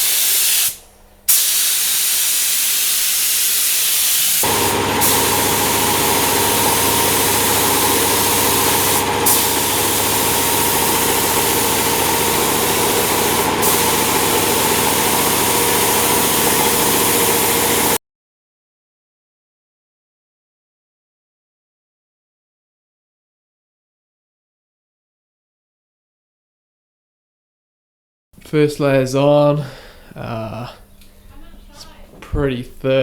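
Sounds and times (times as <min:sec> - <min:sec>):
air spray gun hissing: 0:00.0 - 0:18.0
motor hum: 0:04.3 - 0:18.0.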